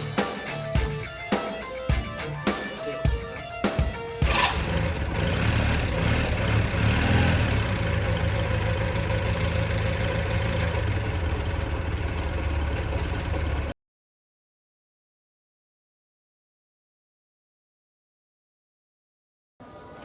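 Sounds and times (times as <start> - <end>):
motorcycle engine idling: 4.2 - 13.8.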